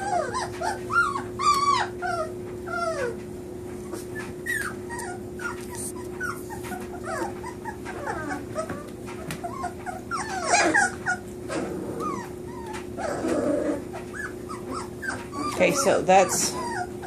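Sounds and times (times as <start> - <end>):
puppies whimpering and squealing: 0.0 - 17.0.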